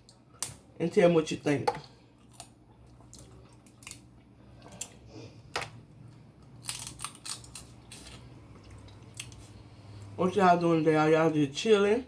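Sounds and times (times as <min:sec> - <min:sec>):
crab shells cracking: 0:06.4 - 0:07.7.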